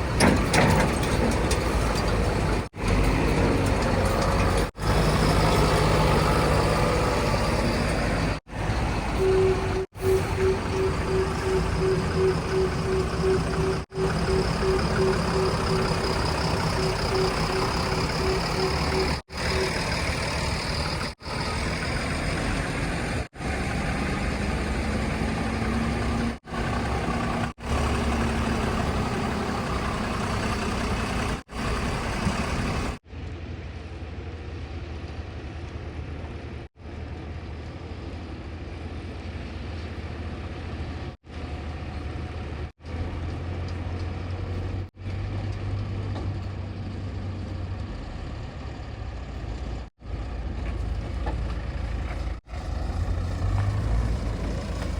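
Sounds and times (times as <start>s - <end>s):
heavy diesel machinery drone: 0.0s - 33.0s.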